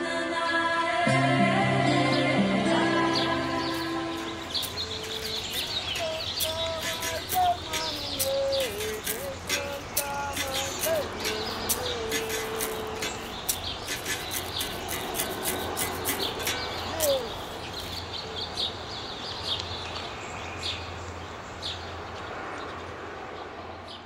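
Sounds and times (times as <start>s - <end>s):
birds chirping: 1.8s - 24.0s
falling bird call: 3.0s - 18.0s
outdoor hiss: 3.4s - 21.9s.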